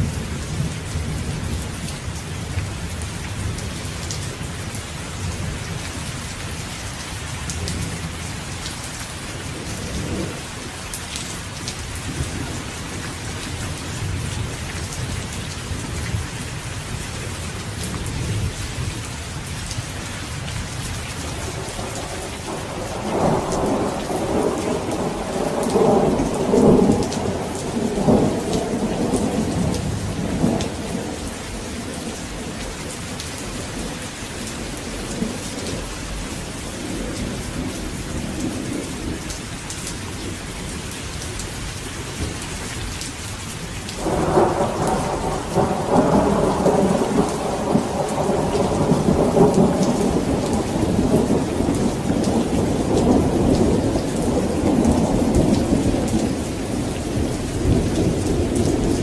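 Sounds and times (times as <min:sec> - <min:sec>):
steady rain falling: 0:00.0 - 0:59.0
thunder rumbling: 0:21.2 - 0:39.3, 0:43.9 - 0:59.0.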